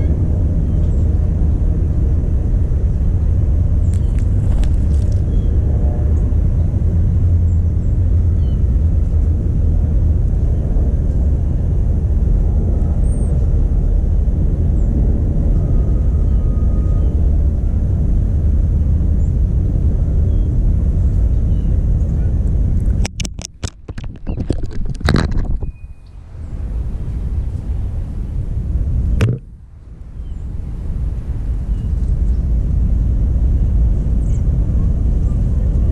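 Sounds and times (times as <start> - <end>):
loud low rumble: 0.0 - 23.2, 25.0 - 35.9
sharp knocks and clicks: 22.9 - 25.7, 29.2 - 29.5.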